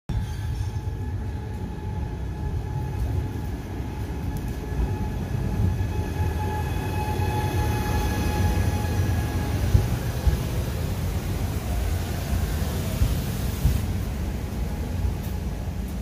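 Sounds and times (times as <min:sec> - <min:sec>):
train wheels rumbling on track: 0:00.1 - 0:16.0.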